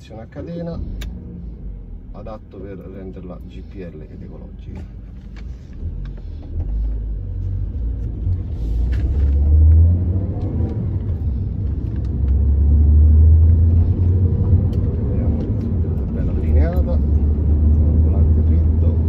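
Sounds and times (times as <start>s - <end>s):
car engine accelerating: 0.3s - 19.0s.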